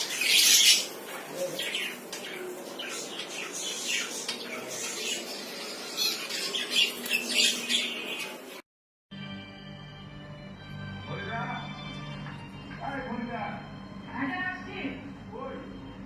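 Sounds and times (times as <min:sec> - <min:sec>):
bird squawking: 0:00.0 - 0:08.4.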